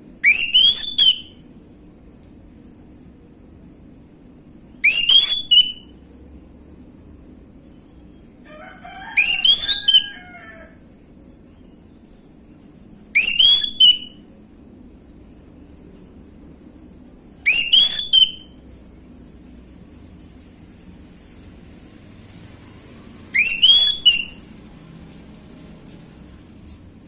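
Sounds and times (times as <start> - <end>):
bird singing whistled notes: 0.2 - 1.4, 3.2 - 5.9, 9.2 - 10.1, 13.2 - 15.8, 17.4 - 18.6, 23.3 - 27.0.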